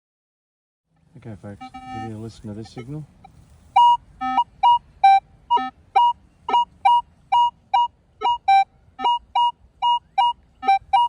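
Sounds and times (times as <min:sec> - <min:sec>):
metal detector beeps: 0:01.6 - 0:02.9, 0:03.8 - 0:11.0.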